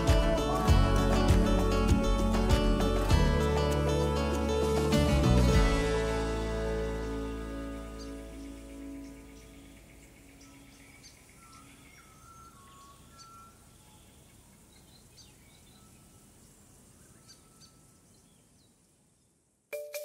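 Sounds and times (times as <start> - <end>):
soft music: 0.0 - 13.7, 19.7 - 20.0
faint bird chirps: 7.8 - 19.5.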